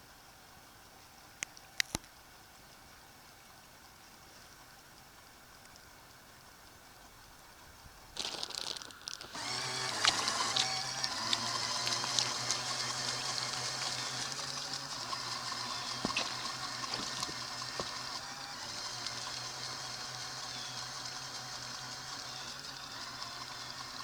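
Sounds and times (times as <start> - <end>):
small clicks: 1.4 - 2.2, 5.6 - 6.2, 8.2 - 24.0
splashing rushing water: 8.2 - 20.0.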